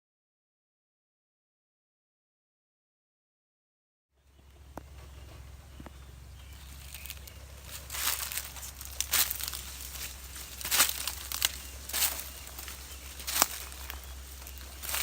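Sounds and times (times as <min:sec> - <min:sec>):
steady low hum: 0:04.2 - 0:15.0
dry material rustling and crackling: 0:04.8 - 0:15.0.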